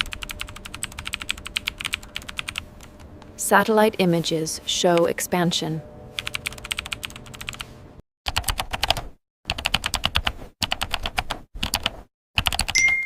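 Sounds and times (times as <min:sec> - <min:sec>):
keyboard typing clicks: 0:08.3 - 0:13.0.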